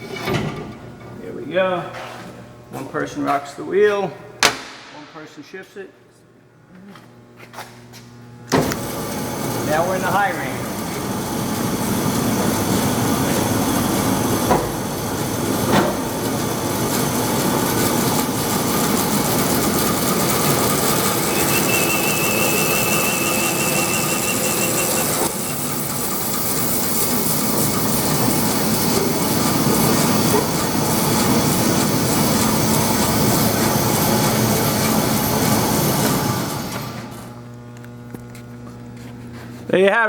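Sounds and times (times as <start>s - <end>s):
sharp knocks: 4.4s - 5.2s, 14.5s - 14.9s
bandsaw whirring: 8.7s - 37.2s
thin wavering whistle: 21.1s - 26.0s.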